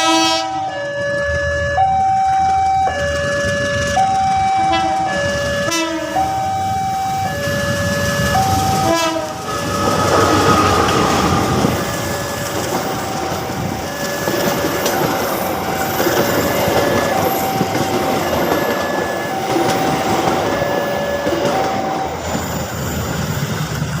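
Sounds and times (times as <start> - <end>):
train rumbling past: 0.0 - 24.0
level-crossing alarm two alternating tones: 0.1 - 23.0
train wheel clatter: 7.3 - 24.0.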